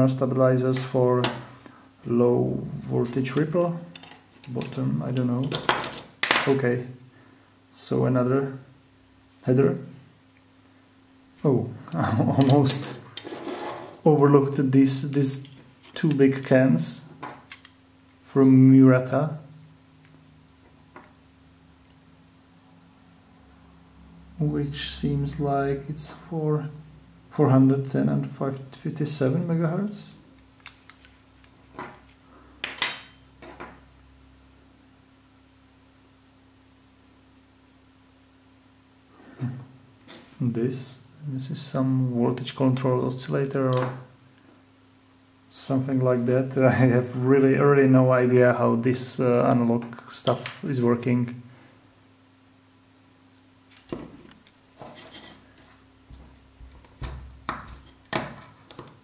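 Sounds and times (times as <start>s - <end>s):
faint steady hum: 0.0s - 59.0s
tools scraping: 12.5s - 14.0s, 54.8s - 55.8s.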